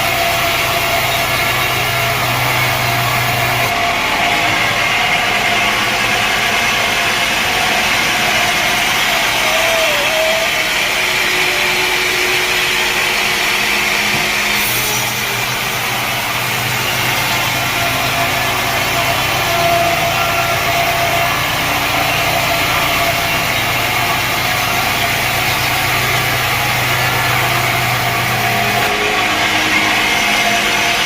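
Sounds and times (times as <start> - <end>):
saw cutting through logs: 0.0 - 31.0
sawmill machinery running: 0.0 - 31.0.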